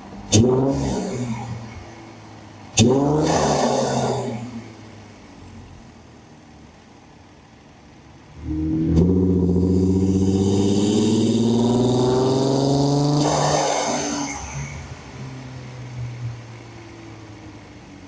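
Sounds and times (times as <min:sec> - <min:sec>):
car engine accelerating: 0:08.3 - 0:15.7.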